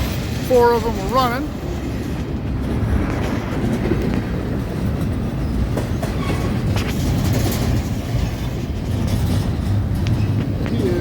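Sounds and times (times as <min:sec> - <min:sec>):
freight train rumble: 0:00.0 - 0:11.0
wheels clicking over rails: 0:00.0 - 0:11.0.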